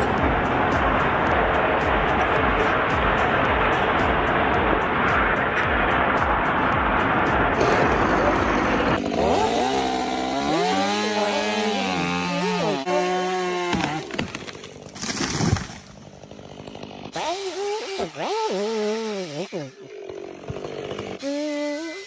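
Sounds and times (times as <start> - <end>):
rushing noise: 0.0 - 9.7
chainsaw engine revving: 0.0 - 22.0.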